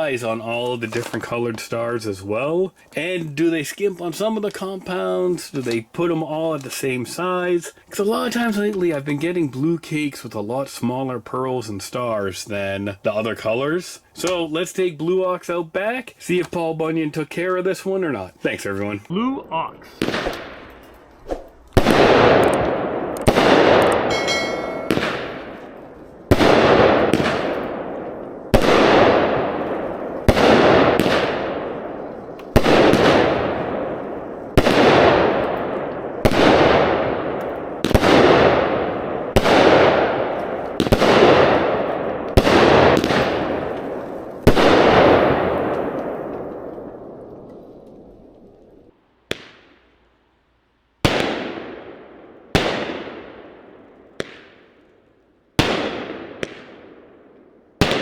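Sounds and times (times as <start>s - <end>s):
firework shells banging with echo: 21.8s - 31.8s, 54.2s - 54.8s.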